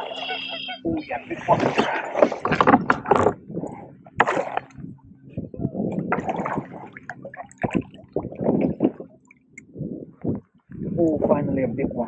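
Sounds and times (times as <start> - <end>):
fish splashing in water: 4.2 - 4.8, 6.1 - 9.4.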